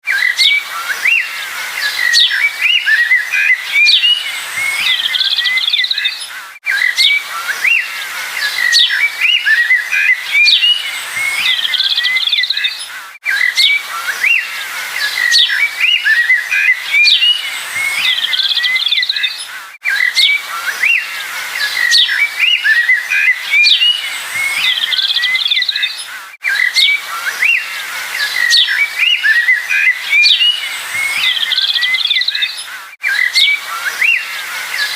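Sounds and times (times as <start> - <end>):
small songbirds chirping: 0.1 - 34.9.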